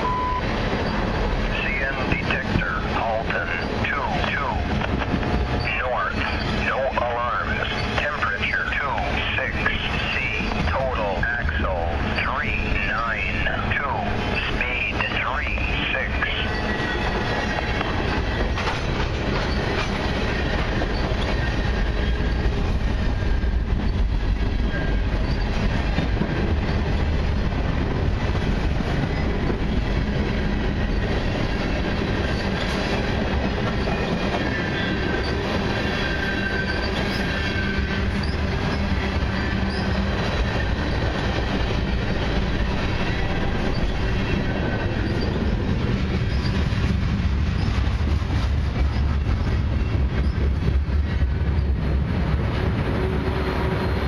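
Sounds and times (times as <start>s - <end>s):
steel wheels rumbling on rail: 0.0s - 54.0s
high wheel squeal: 5.3s - 6.6s, 33.8s - 40.1s, 43.1s - 46.7s.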